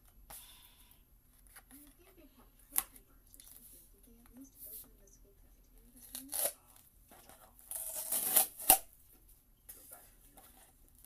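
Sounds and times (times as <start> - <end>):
packaging tearing and crinkling: 7.7 - 8.9.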